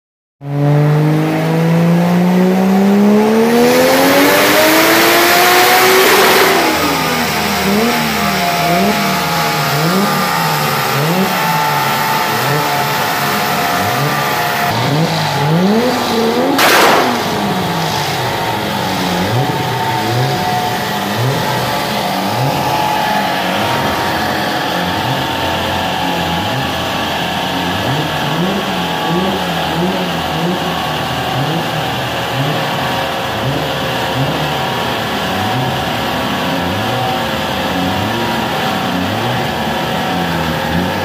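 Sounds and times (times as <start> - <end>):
car engine revving in blips: 0.4 - 41.0.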